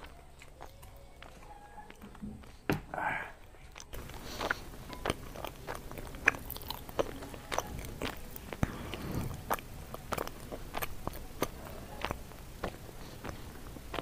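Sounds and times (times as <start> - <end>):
chewing crunchy leaves: 0.0 - 1.5, 3.7 - 14.0.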